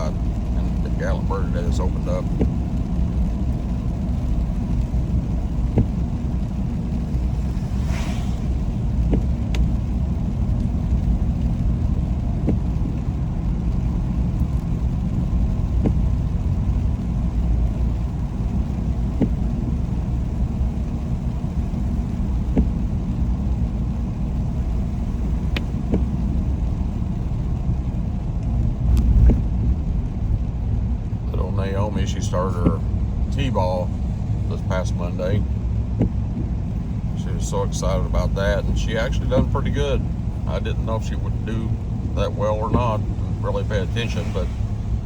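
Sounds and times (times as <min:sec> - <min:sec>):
car driving rumble from inside: 0:00.0 - 0:45.0.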